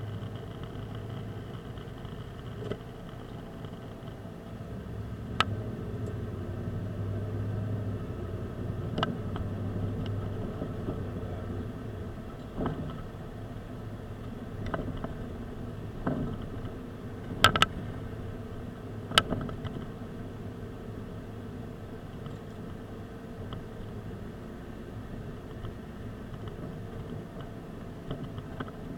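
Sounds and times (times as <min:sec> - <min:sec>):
car engine and road noise: 0:00.0 - 0:28.9.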